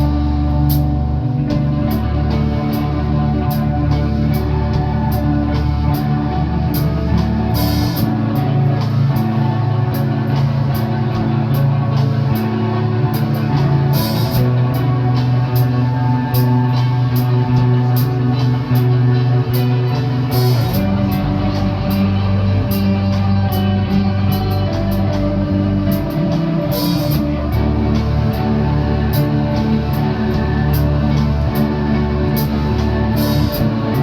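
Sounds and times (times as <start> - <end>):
drum kit hi-hat: 0.0 - 34.0
sustained bass and guitar chords: 0.0 - 34.0.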